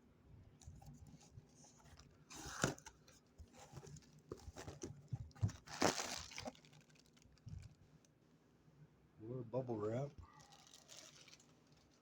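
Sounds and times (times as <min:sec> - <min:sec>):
plastic packaging crinkling and tearing: 0:05.6 - 0:07.8, 0:10.3 - 0:12.0.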